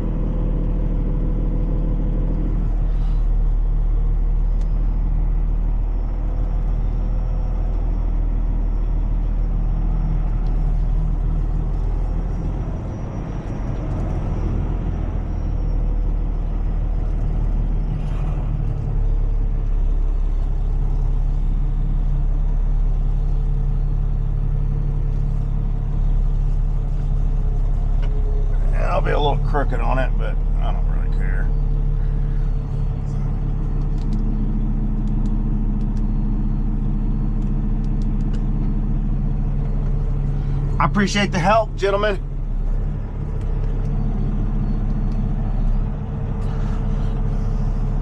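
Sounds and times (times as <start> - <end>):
diesel engine rumbling: 0.0 - 48.0.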